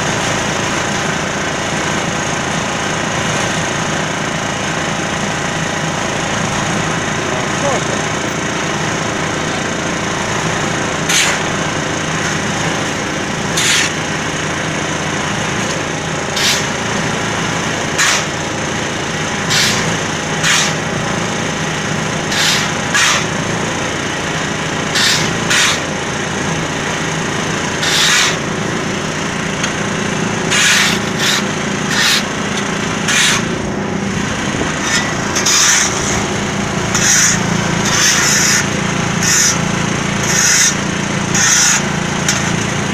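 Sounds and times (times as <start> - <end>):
diesel engine running: 0.0 - 42.9
harsh scraping rasps: 30.5 - 32.4, 33.0 - 41.9.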